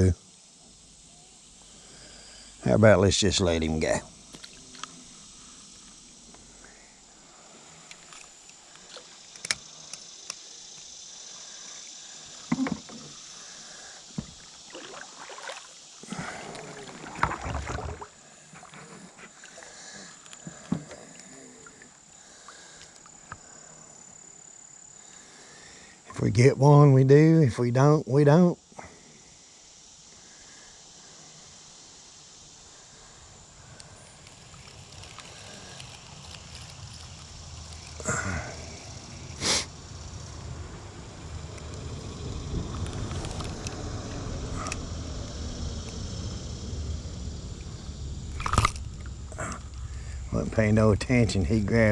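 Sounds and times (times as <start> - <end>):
steady high-pitched hiss: 0.0 - 51.9
rustling: 33.8 - 39.2
low rumble: 38.5 - 51.9.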